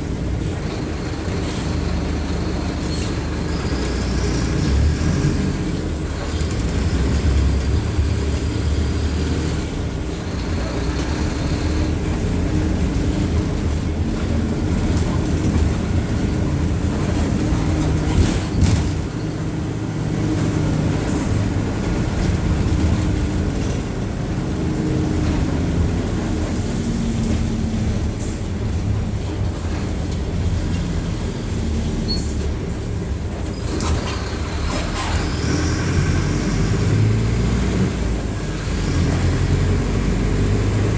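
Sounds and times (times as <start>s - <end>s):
bus diesel engine running: 0.0s - 40.9s.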